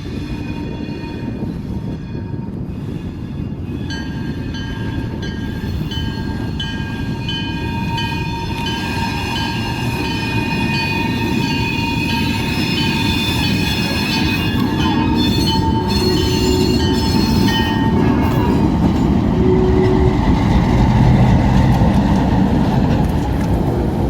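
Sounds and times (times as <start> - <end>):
freight train rumbling: 0.0 - 24.0
high ringing tones: 3.8 - 20.3.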